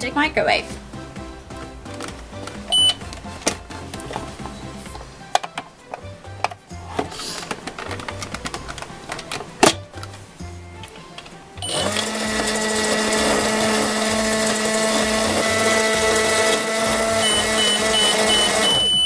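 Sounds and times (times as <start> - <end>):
short high beeps: 2.7 - 3.0, 17.2 - 19.0
toy microwave humming drone: 11.6 - 19.0.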